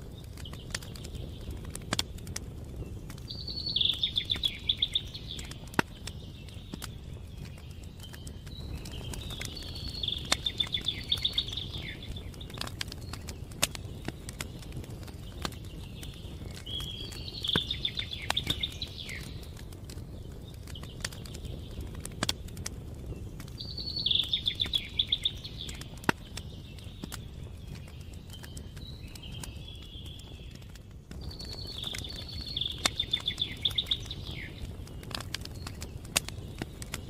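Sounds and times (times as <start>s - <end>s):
campfire crackling and popping: 0.0s - 37.0s
songbird trilling: 3.3s - 6.3s, 8.7s - 12.6s, 16.7s - 19.4s, 23.6s - 26.0s, 31.4s - 34.7s.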